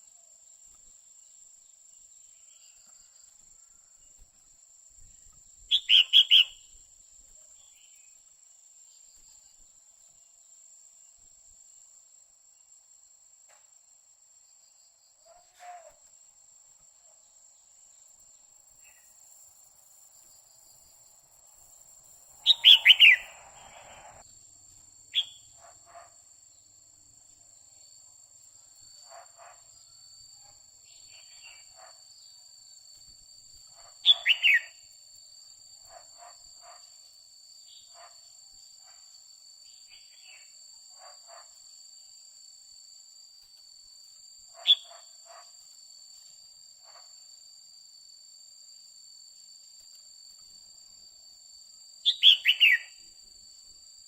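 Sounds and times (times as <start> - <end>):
bird whistled calls: 5.7 - 6.6, 22.4 - 24.2, 34.1 - 34.8, 52.1 - 52.9.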